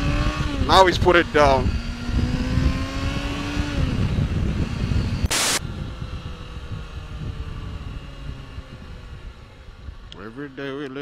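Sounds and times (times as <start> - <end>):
wind rush on microphone: 0.0 - 10.1
motorcycle engine running: 0.0 - 11.0
road rumble: 0.0 - 11.0
loud burst of hiss: 5.3 - 5.6.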